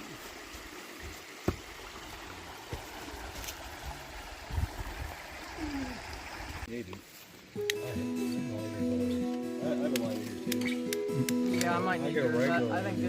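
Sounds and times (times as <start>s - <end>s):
creek water running: 0.0s - 7.7s.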